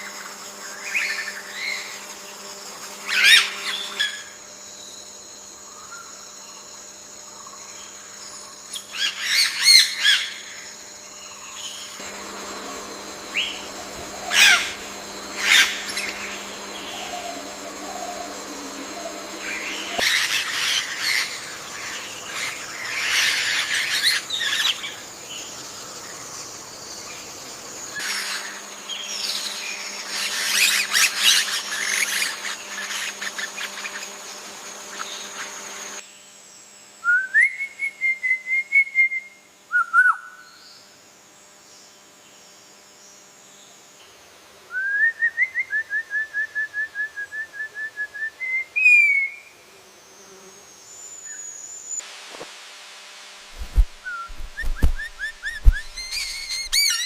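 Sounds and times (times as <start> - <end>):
chorus of bird chirps: 11.3 - 26.1, 54.0 - 57.0
bird whistling trills: 13.3 - 21.5, 53.6 - 57.0.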